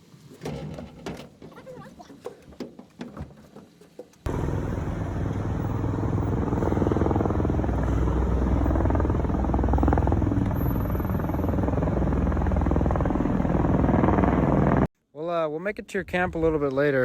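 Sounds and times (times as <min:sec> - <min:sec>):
rushing wind noise: 0:04.3 - 0:14.9
vehicle engine running: 0:04.3 - 0:14.9.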